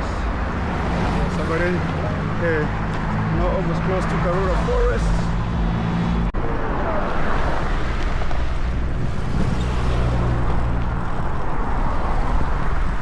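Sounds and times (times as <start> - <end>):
road noise: 0.0 - 13.0
vehicle engine hum: 0.0 - 13.0.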